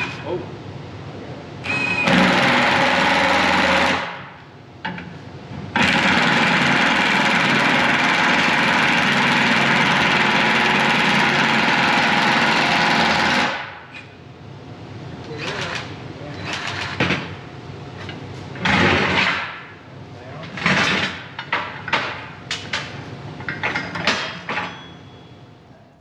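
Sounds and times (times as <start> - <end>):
power tool running: 1.7 - 4.3, 5.8 - 13.7.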